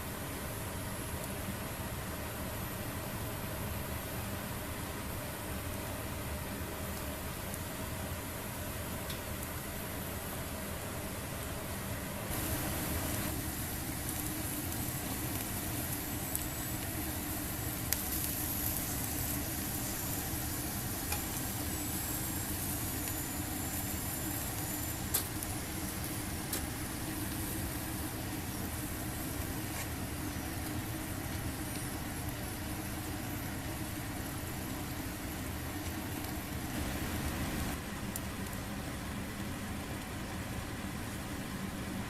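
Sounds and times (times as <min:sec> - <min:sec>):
meat sizzling on a grill: 0:12.3 - 0:38.7.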